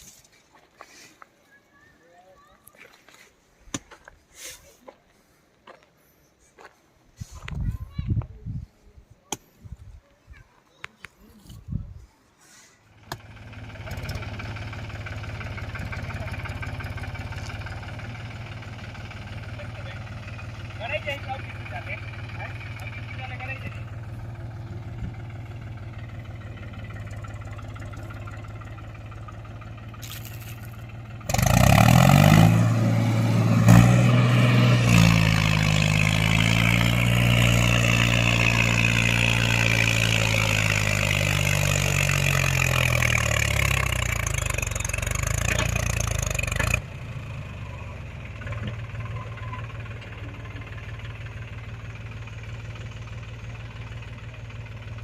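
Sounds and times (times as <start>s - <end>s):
tractor diesel engine running: 12.8s - 55.0s
tractor engine revving: 13.0s - 55.0s.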